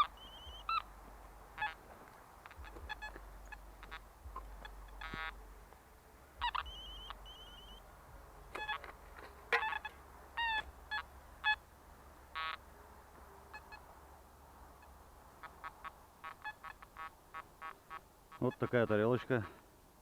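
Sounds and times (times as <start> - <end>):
metal detector beeps: 6.4 - 7.8.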